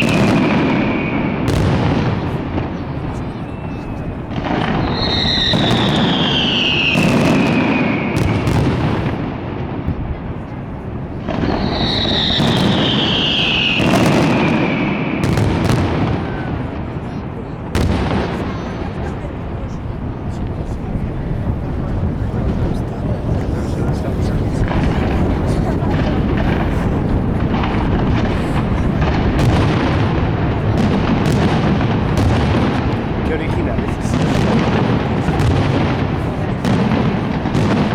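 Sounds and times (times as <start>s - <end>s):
fireworks bursting: 0.0s - 37.9s
sharp fireworks cracks: 0.0s - 37.9s
whistles falling in pitch: 4.7s - 7.1s, 11.6s - 14.0s.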